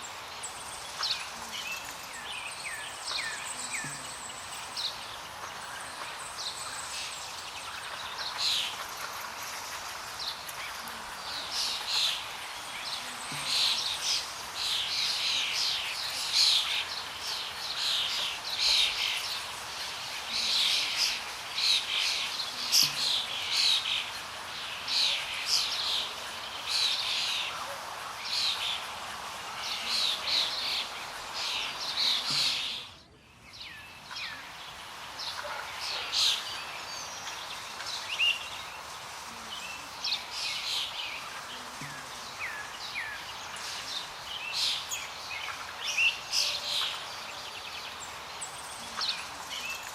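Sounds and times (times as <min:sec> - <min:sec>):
small birds chirping: 0:00.0 - 0:49.9
steady background hiss: 0:00.0 - 0:49.9.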